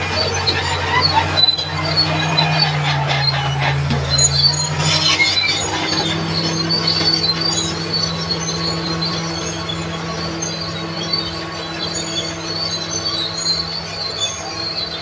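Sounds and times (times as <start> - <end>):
bulldozer diesel engine: 0.0 - 15.0
steel tracks squeaking and rattling: 0.0 - 15.0.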